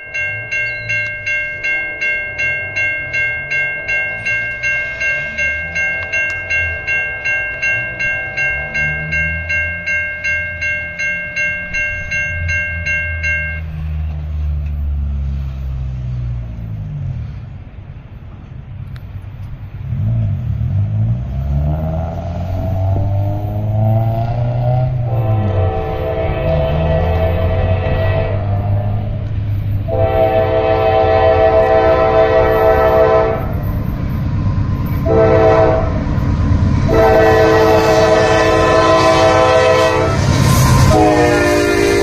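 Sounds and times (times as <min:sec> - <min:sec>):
crossing warning bell ringing: 0:00.0 - 0:15.9, 0:19.2 - 0:42.0
diesel freight train rumble: 0:00.0 - 0:42.0
locomotive horn: 0:24.1 - 0:33.7, 0:35.0 - 0:36.1, 0:36.8 - 0:42.0.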